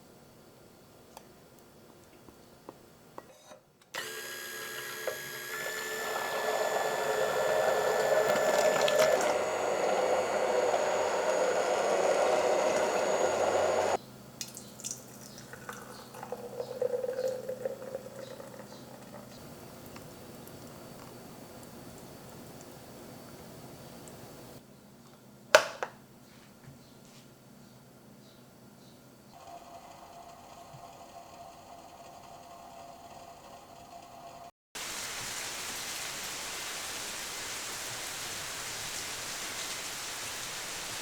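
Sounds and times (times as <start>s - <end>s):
small electric motor whining: 4.0s - 14.0s
rushing hiss: 34.8s - 41.0s.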